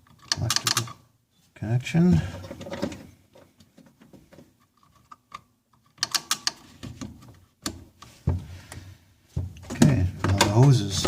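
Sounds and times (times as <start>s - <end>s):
connector and pump parts clicking: 0.0s - 1.0s, 4.7s - 8.1s.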